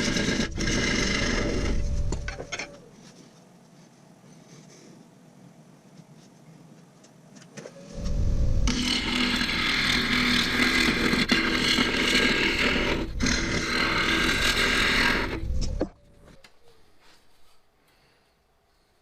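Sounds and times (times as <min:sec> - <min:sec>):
power tool working wood: 0:00.0 - 0:02.5, 0:08.0 - 0:15.9.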